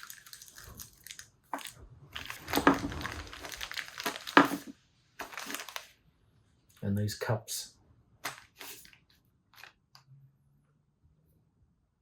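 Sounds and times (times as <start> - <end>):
plastic packaging crinkling: 0.0 - 6.0, 8.2 - 9.8.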